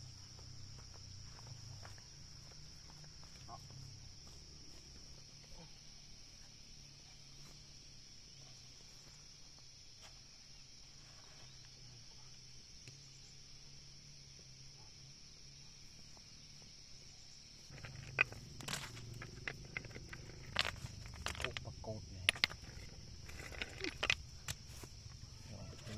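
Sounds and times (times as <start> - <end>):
sharp clicks and knocks: 17.7 - 24.9.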